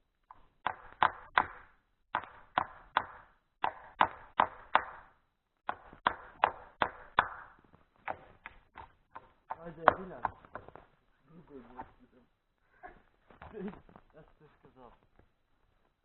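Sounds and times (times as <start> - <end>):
hammer driving nail into wood: 0.3 - 10.8.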